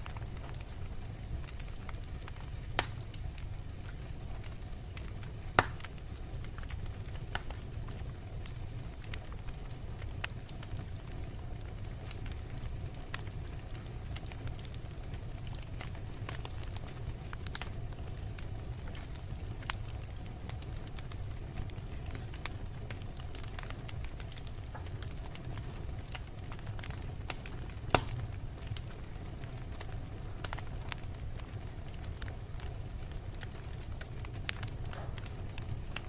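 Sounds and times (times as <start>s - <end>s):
fire crackling: 0.0s - 36.0s
low rumble of flames: 0.0s - 36.0s
wood fire pops: 0.0s - 36.0s.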